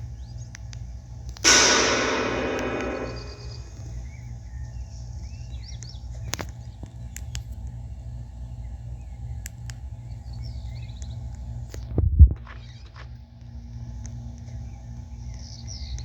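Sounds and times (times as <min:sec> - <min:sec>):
low rumble: 0:01.5 - 0:03.9.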